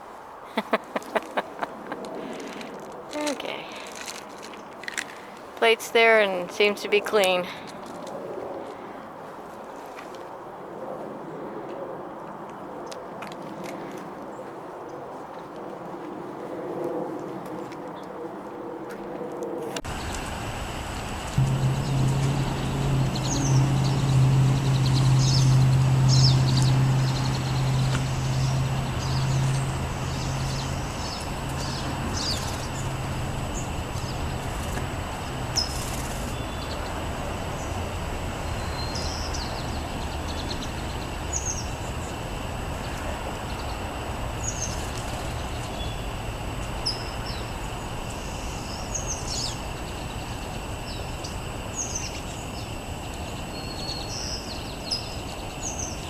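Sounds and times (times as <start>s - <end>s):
distant traffic: 0.0s - 10.1s, 18.4s - 56.0s
low engine hum: 19.8s - 53.2s.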